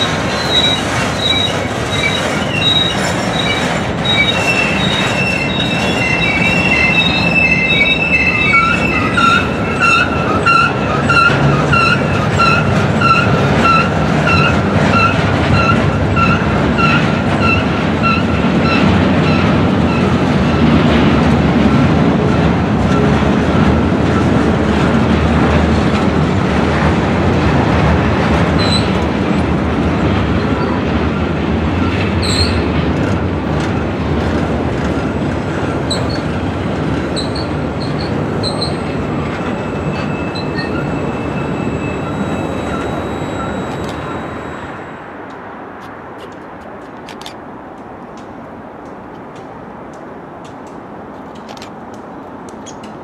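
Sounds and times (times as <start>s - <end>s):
high wheel squeals: 0.0s - 20.8s, 28.5s - 29.0s, 30.2s - 32.7s, 35.8s - 45.3s
train wheels rumbling on rail: 0.0s - 53.0s.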